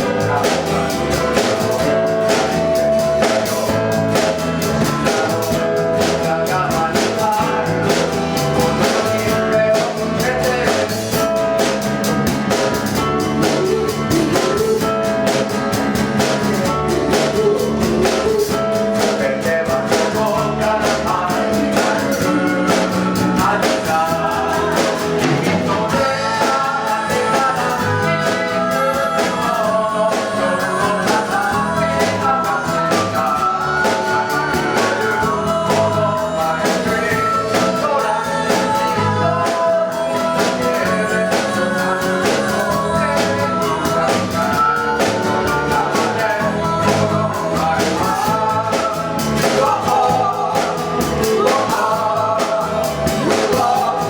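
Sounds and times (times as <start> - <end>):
live band playing pop song: 0.0 - 54.0
person singing: 0.0 - 54.0
steady drum beat: 0.0 - 54.0.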